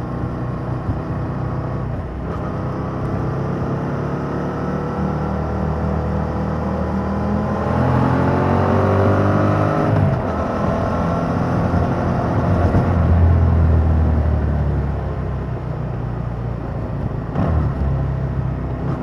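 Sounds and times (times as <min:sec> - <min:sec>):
motorcycle engine accelerating: 0:00.0 - 0:15.2.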